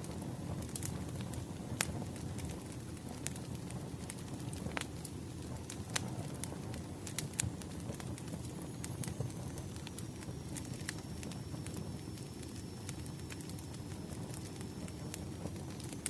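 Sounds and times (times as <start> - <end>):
burning logs rumbling: 0.0 - 16.0
fire pops and snaps: 0.0 - 16.0.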